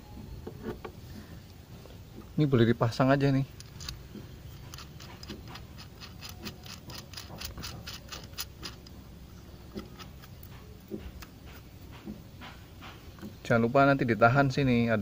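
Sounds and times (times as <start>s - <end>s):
light metallic clicks and ticks: 3.4s - 9.0s.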